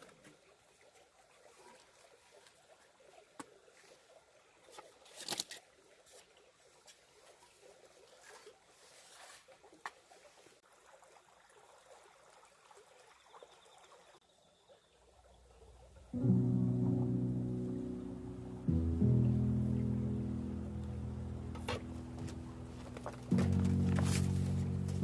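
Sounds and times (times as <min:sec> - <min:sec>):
light rustling: 0:21.5 - 0:25.0.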